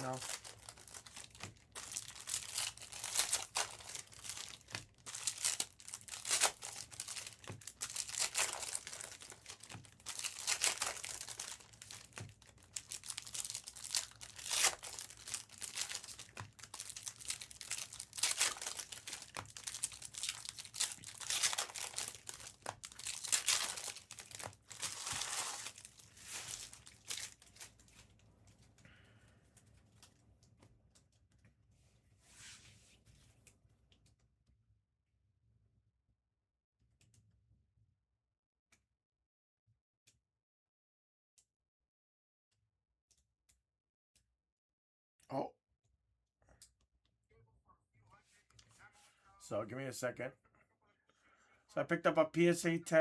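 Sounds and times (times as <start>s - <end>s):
plastic packaging crinkling and tearing: 0.0s - 28.2s.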